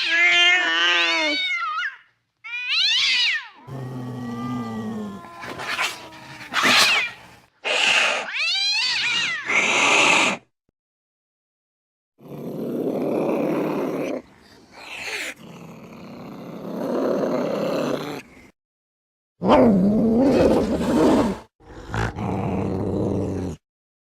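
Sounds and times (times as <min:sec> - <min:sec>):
cat growling and yowling: 0:00.0 - 0:10.5, 0:19.4 - 0:23.6.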